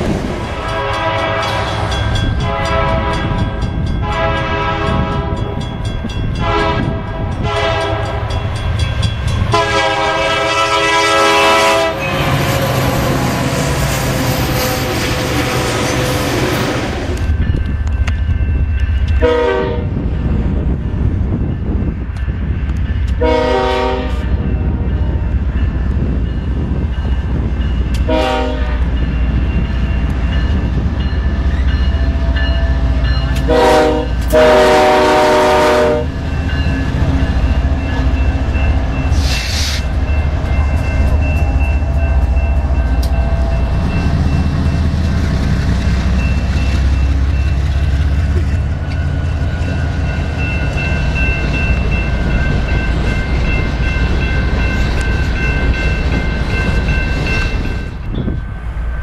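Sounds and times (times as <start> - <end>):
diesel locomotive engines rumbling: 0.0 - 59.0
train air horn blasts: 0.5 - 5.6, 6.4 - 8.4, 9.5 - 13.2, 19.2 - 19.9, 23.2 - 25.2, 28.0 - 28.9, 33.4 - 36.1.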